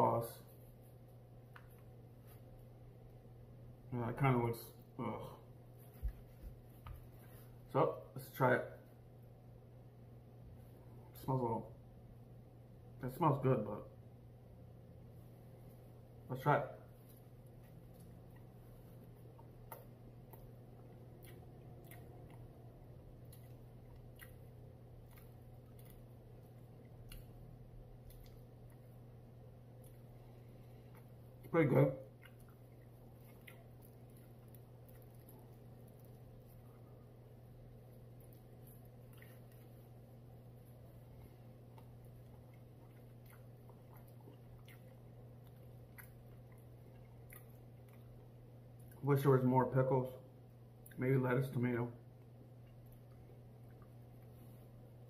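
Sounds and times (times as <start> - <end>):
steady low hum: 0.0 - 55.0
person chewing: 17.0 - 49.0.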